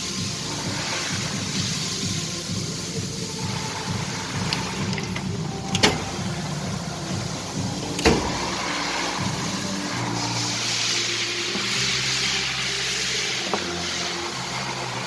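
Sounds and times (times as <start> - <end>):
car engine running: 2.0 - 10.6.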